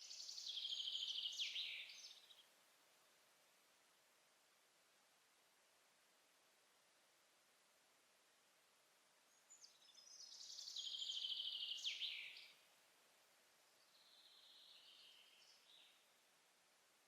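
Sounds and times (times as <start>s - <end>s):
forest ambience hiss: 0.0s - 17.0s.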